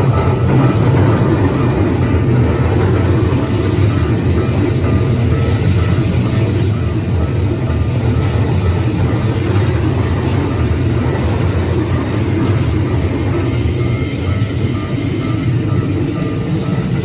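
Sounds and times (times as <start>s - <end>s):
train wheels rumbling on rails: 0.0s - 17.0s
faint high whine: 9.5s - 17.0s.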